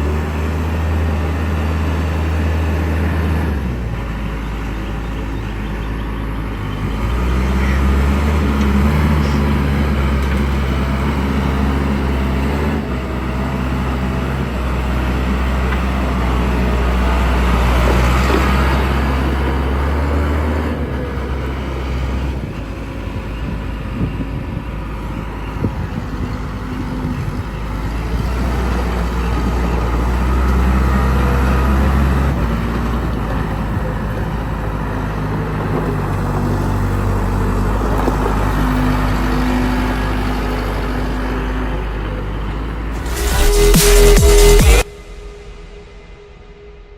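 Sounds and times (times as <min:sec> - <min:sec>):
backhoe diesel engine running: 0:00.0 - 0:46.9.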